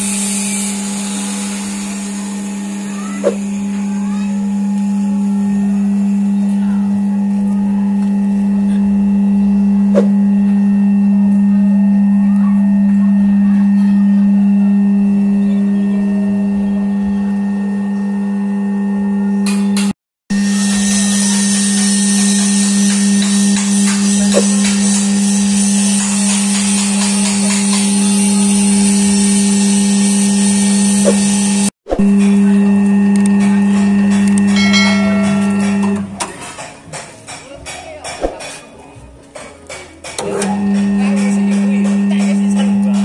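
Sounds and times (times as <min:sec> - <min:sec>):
oil press machine humming: 0:40.1 - 0:43.0.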